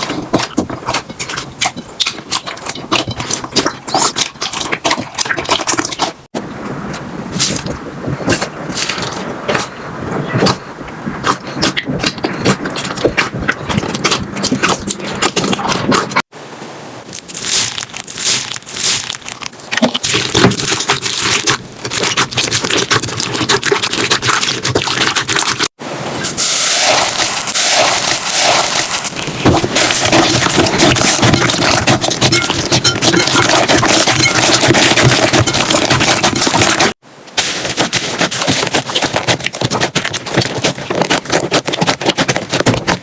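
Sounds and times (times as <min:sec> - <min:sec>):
slime crackling and popping: 0:17.1 - 0:25.7, 0:26.4 - 0:43.0.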